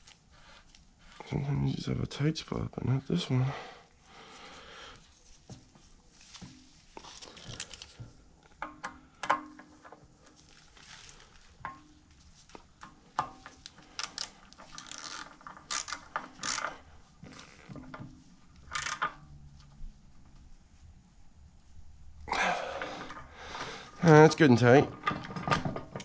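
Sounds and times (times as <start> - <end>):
ratchet wrench clicking: 14.0 - 16.8, 18.7 - 19.0.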